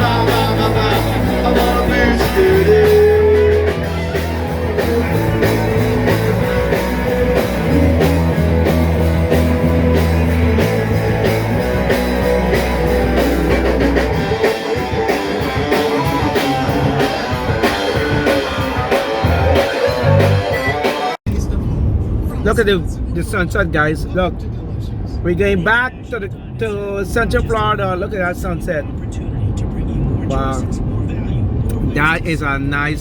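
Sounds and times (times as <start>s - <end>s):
rock song with guitar and bass: 0.0s - 21.2s
steady drum beat: 0.0s - 21.2s.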